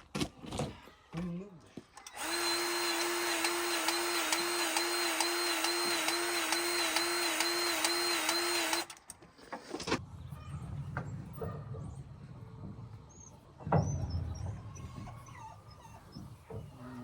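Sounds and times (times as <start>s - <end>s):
small electric motor pulsing: 2.1s - 9.1s.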